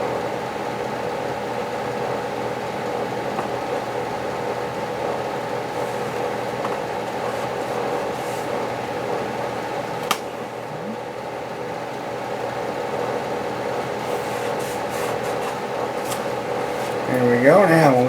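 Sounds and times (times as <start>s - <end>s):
fan or motor humming: 0.0s - 18.0s
tape rustling: 13.7s - 17.3s.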